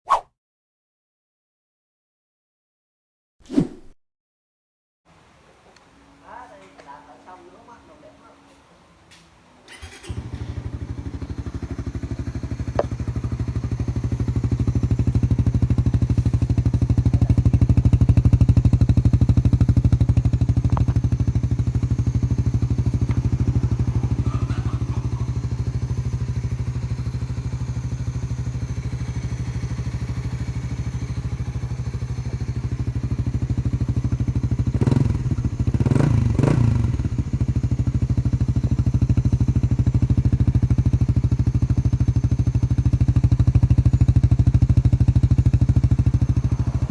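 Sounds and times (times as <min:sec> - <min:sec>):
motorcycle engine idling: 0:09.6 - 0:46.9
engine revving: 0:09.7 - 0:28.6, 0:33.9 - 0:37.7, 0:44.2 - 0:46.9.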